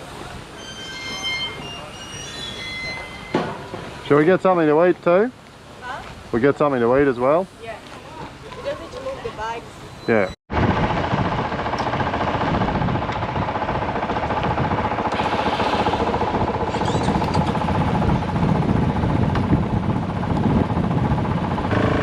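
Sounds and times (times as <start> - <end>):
dirt bike engine running: 10.6 - 22.0.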